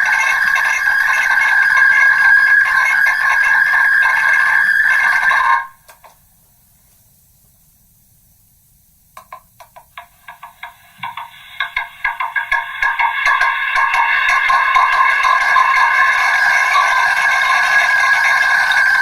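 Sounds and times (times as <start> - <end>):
shrill buzzing megaphone drone: 0.0 - 5.8, 11.0 - 19.0
faint hiss: 5.8 - 19.0.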